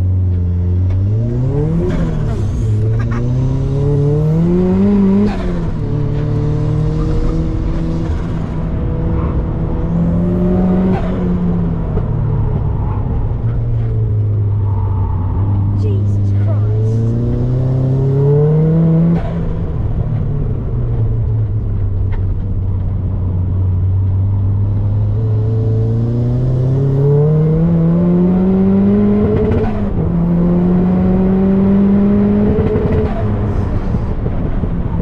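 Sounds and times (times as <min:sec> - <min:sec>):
car engine accelerating hard: 0:00.0 - 0:35.0.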